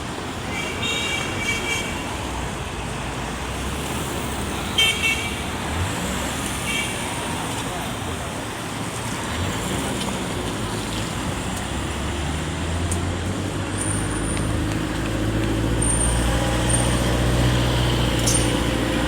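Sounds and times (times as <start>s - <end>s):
city street traffic: 0.0s - 19.0s
heavy vehicle engine drone: 5.4s - 19.0s.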